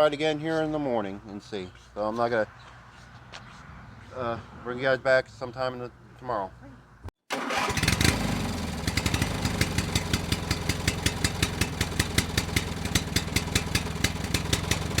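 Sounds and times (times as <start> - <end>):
small engine running: 7.6 - 15.0.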